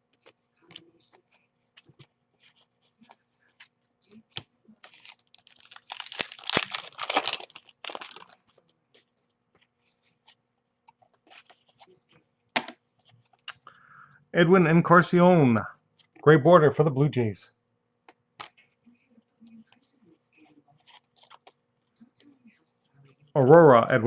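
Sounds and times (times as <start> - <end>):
wrapper tearing and crinkling: 4.8 - 8.5.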